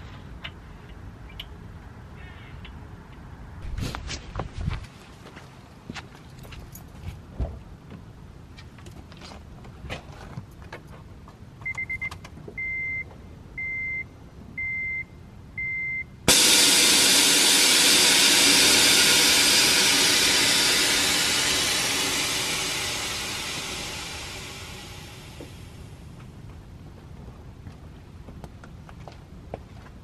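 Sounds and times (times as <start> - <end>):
car engine starting and idling: 16.3 - 26.2.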